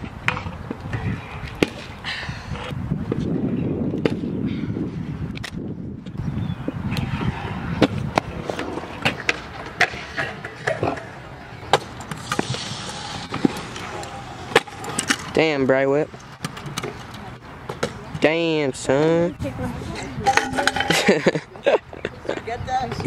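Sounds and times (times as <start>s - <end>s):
scooter wheels rolling on concrete: 5.3s - 23.0s.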